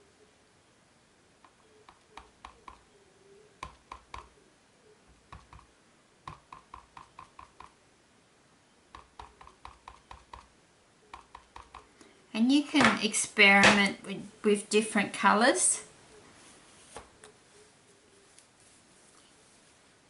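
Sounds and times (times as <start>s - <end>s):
ink pad tapping on stamp: 1.4s - 2.8s, 3.6s - 4.3s, 5.3s - 5.7s, 6.3s - 7.8s, 8.9s - 10.5s, 11.1s - 11.9s.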